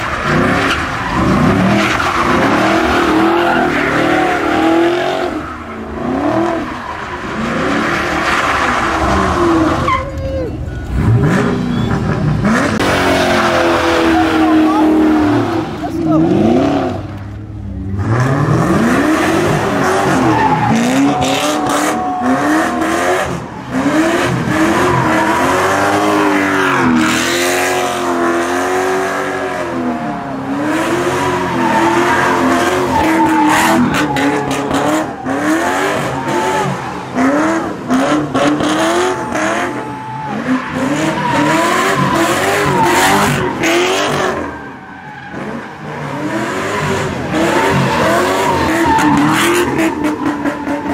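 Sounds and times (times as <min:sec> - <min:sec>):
car engine revving: 0:00.0 - 0:50.9
tyres squealing: 0:19.6 - 0:27.3, 0:29.7 - 0:46.0, 0:46.8 - 0:50.9.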